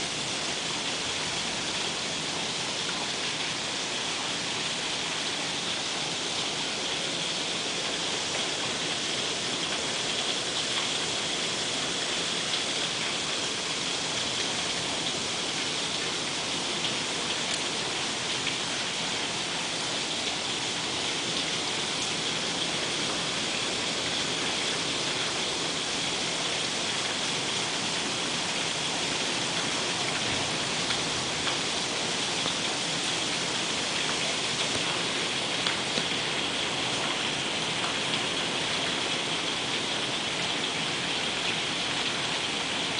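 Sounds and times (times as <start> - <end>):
rain hiss: 0.0 - 42.9
raindrops ticking: 34.0 - 36.7.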